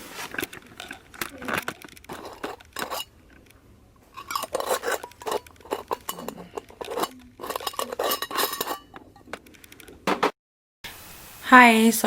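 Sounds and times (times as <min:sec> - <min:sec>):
small objects clinking and clattering: 0:00.3 - 0:03.5, 0:04.1 - 0:09.7.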